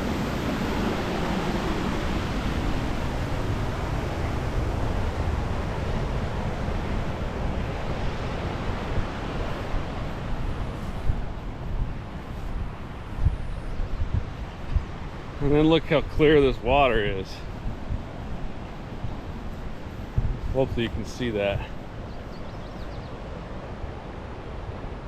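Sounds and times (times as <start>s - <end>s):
waterfall rushing: 20.5s - 22.0s.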